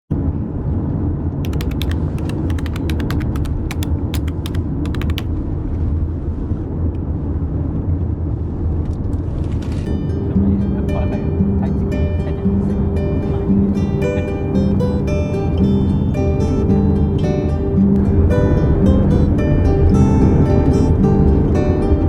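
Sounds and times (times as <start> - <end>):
sharp ratcheting clicks: 1.5 - 5.3.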